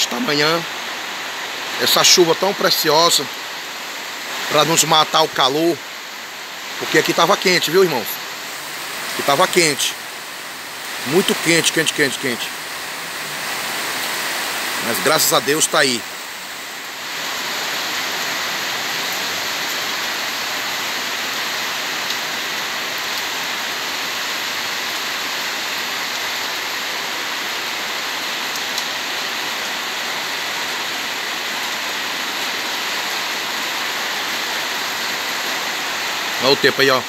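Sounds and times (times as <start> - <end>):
heavy rain on street and roofs: 0.0 - 37.0.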